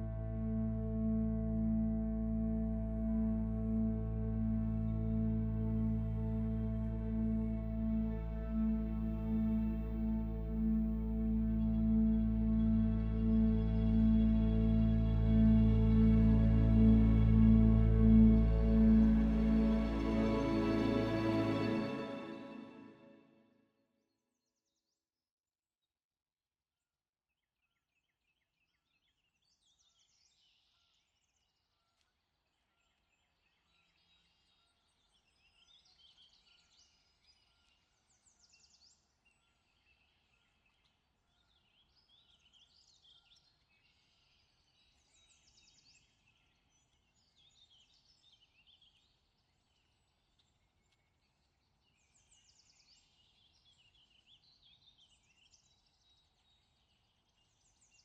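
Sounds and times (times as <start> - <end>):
low steady hum: 0.0 - 22.9
faint birdsong: 28.6 - 58.0.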